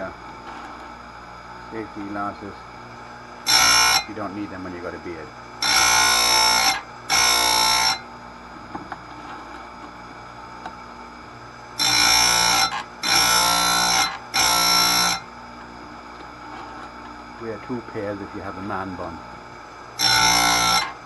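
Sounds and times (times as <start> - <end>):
grinder motor humming: 0.0 - 21.0
grinding wheel screeching on chain: 3.5 - 4.2, 11.8 - 15.3.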